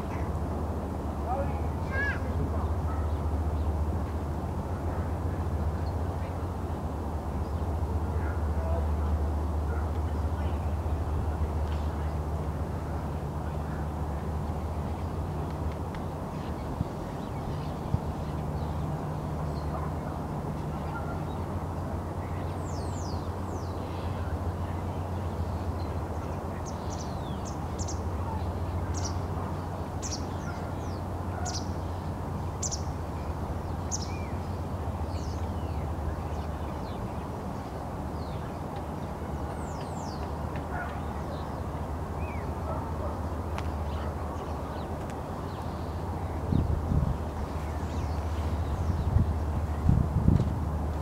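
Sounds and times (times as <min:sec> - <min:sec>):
birds chirping: 0:22.1 - 0:49.9
steady low rumble: 0:43.3 - 0:51.0.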